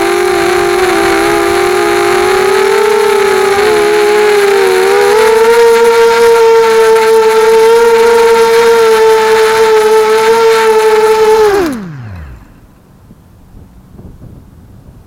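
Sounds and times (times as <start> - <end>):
drone motors whining: 0.0 - 12.9
faint wind noise: 11.5 - 15.0.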